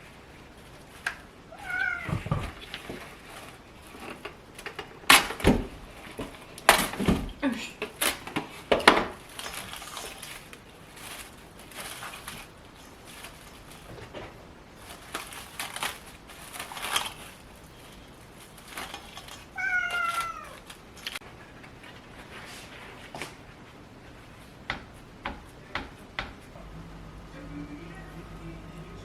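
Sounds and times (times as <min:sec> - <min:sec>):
short rustling: 0:00.0 - 0:29.0
cat meowing: 0:01.5 - 0:02.6, 0:19.5 - 0:20.7.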